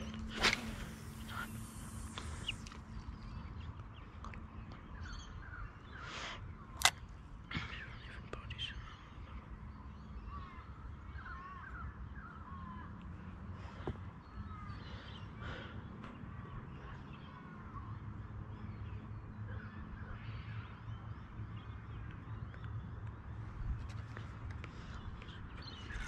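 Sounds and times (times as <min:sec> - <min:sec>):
birds chirping and calling: 0:00.0 - 0:03.6, 0:23.9 - 0:26.0
sharp click: 0:06.8 - 0:07.1.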